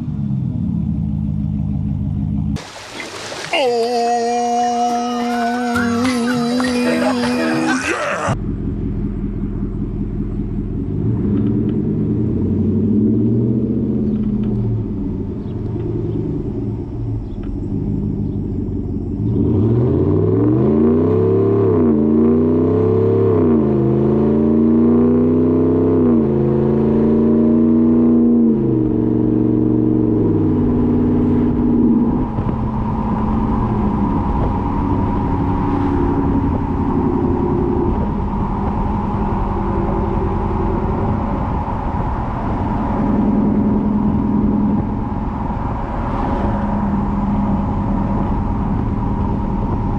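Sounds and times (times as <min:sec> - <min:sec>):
engine idling and revving: 0:00.0 - 0:02.6, 0:04.0 - 0:49.9.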